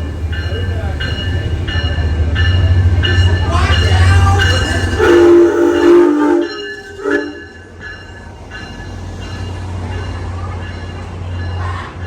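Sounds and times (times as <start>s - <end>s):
locomotive rumble: 0.0s - 12.0s
train horn blast: 4.9s - 7.5s.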